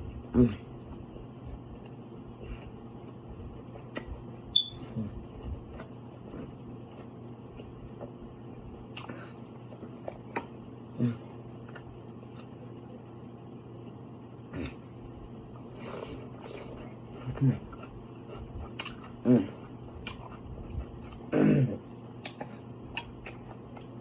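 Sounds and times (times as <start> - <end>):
steady low hum: 0.0 - 24.0
chewing mouth clicks and smacks: 3.3 - 4.4, 17.7 - 19.2, 20.0 - 21.2, 21.8 - 24.0.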